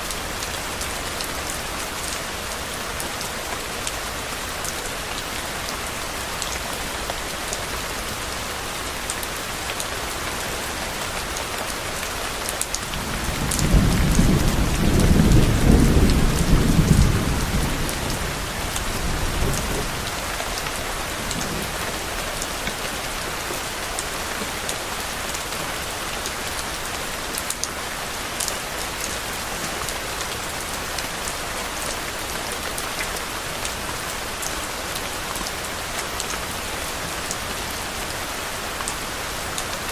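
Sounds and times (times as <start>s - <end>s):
rain falling on a surface: 0.0s - 39.9s
low thunder roll: 13.0s - 20.2s.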